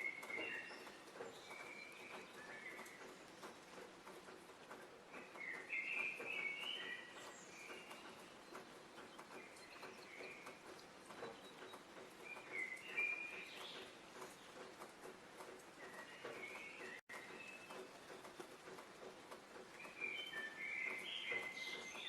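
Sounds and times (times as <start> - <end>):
faint clicks: 0.0 - 22.0
songbird warbling and chirping: 19.8 - 22.0.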